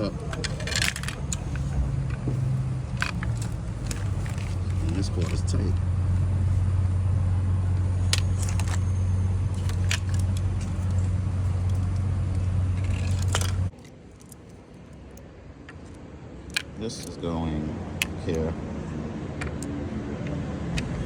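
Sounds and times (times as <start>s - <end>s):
metal parts clicking and rattling: 0.0s - 5.7s, 8.0s - 17.2s
steady low hum: 0.0s - 19.4s.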